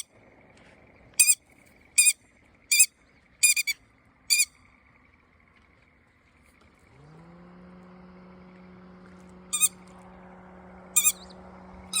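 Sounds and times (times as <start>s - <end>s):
bird calling: 0.0s - 6.8s, 9.5s - 10.0s, 10.9s - 12.0s
low motor hum: 0.0s - 12.0s.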